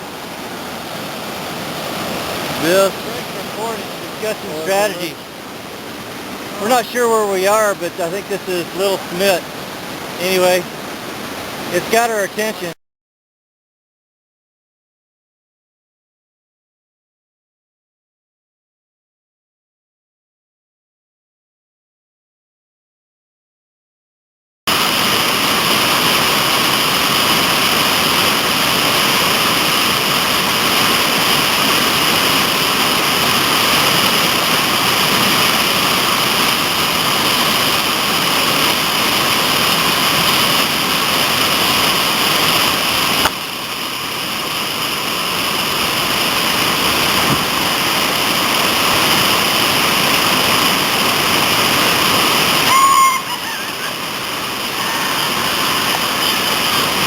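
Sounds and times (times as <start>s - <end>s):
whitewater rushing in rapids: 0.0s - 12.8s, 24.7s - 57.0s.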